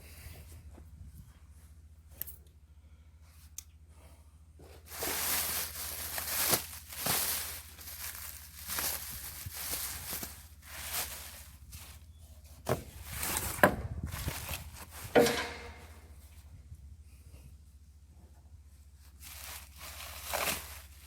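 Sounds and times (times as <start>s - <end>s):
sharp knocks on anvil: 15.2s - 15.9s
packaging being ripped off: 19.6s - 20.9s.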